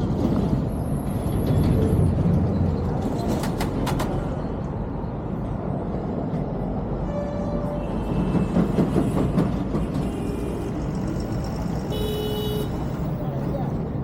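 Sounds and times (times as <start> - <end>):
road and traffic noise: 0.0 - 14.0.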